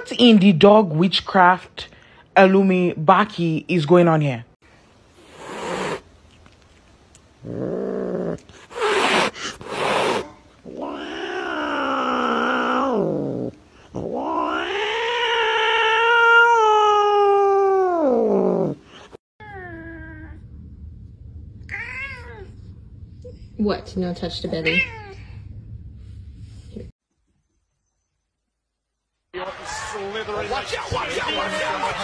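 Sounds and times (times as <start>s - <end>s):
cat hissing: 5.2s - 6.1s, 7.4s - 19.2s
cat yowling: 8.7s - 18.8s, 21.7s - 22.5s
cat meowing: 10.2s - 13.1s, 14.0s - 18.6s, 21.7s - 22.6s.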